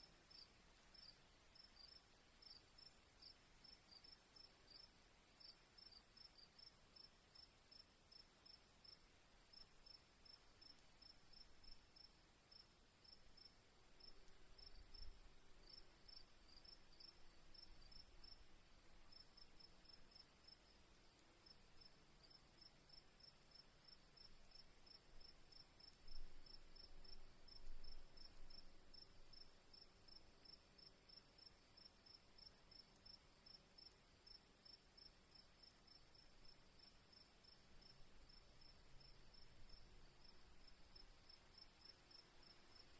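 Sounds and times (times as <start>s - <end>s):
crickets chirping: 0.3s - 42.9s.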